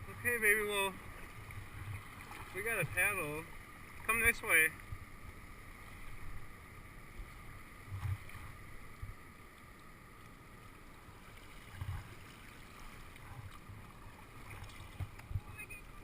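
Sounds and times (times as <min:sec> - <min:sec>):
paddle splashing water: 0:00.0 - 0:05.0, 0:10.5 - 0:16.0.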